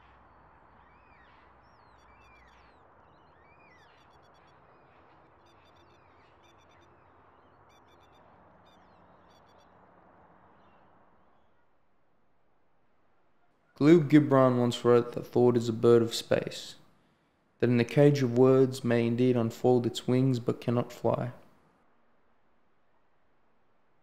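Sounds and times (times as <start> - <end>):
whistled bird chirps: 0.7 - 9.7.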